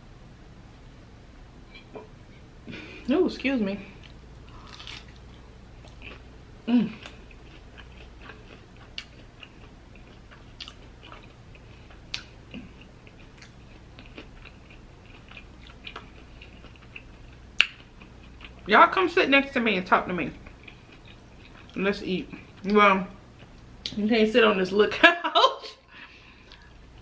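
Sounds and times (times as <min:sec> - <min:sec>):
chewing fried food: 0:03.9 - 0:18.7, 0:20.4 - 0:24.0
person humming: 0:06.7 - 0:07.0.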